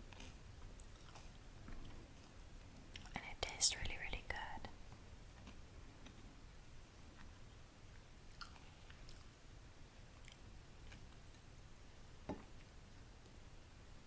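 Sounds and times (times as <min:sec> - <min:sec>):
small food crunches: 0:00.0 - 0:01.9, 0:08.3 - 0:09.3
close chewing with mouth clicks: 0:00.0 - 0:03.2, 0:05.3 - 0:06.2, 0:07.1 - 0:09.4, 0:10.1 - 0:11.5.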